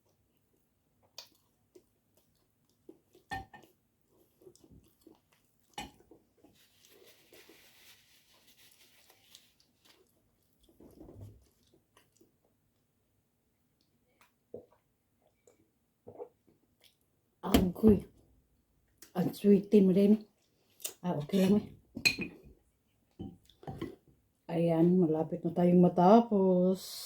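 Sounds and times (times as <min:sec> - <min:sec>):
soft chewing and mouth clicks: 0:00.0 - 0:17.2, 0:18.9 - 0:19.2, 0:20.2 - 0:21.4, 0:22.3 - 0:24.1.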